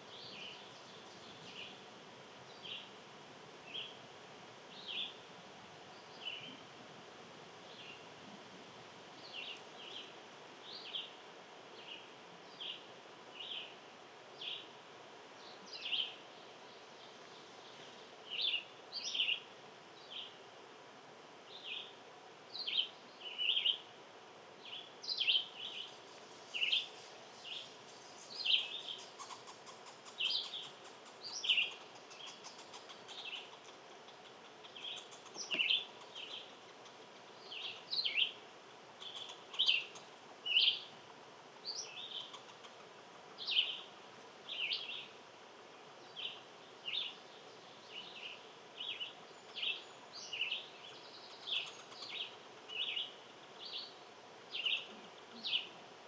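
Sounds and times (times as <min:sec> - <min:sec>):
faint high hiss: 0:00.0 - 0:56.0
songbirds chirping: 0:00.0 - 0:56.0.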